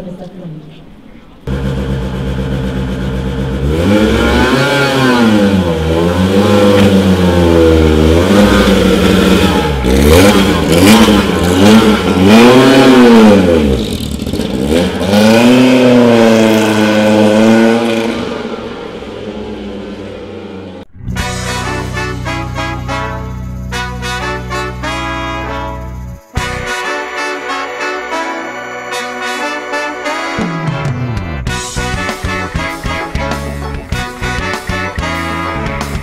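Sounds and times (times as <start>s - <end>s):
rally car engine revving: 1.5s - 23.7s.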